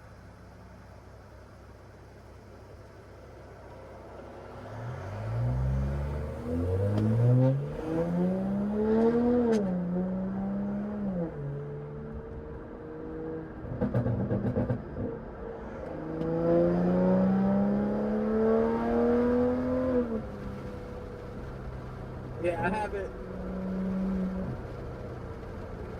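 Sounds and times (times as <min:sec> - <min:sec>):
car engine accelerating: 0:01.3 - 0:25.9
exhaust crackles and pops: 0:06.0 - 0:09.8, 0:13.4 - 0:16.3, 0:20.0 - 0:25.9.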